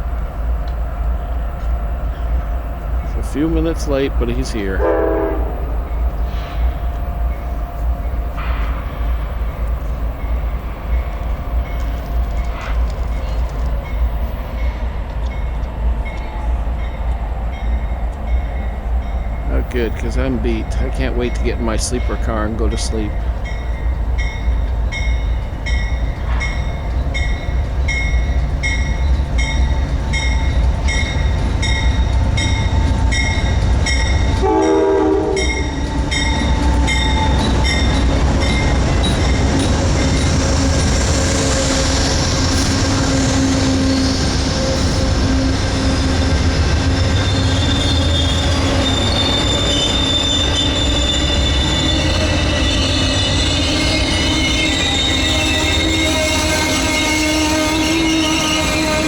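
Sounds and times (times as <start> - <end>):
locomotive rumble: 0.0 - 59.0
train wheels and brakes squealing: 1.1 - 59.0
train horn tone: 2.1 - 9.0, 33.1 - 38.7, 41.4 - 59.0.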